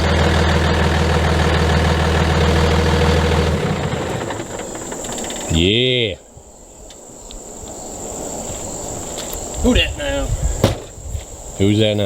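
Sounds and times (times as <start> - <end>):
diesel engine idling: 0.0 - 5.7.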